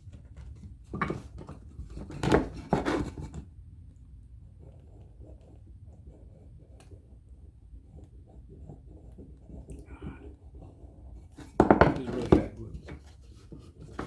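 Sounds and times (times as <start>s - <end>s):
faint handling noise: 11.2s - 14.0s.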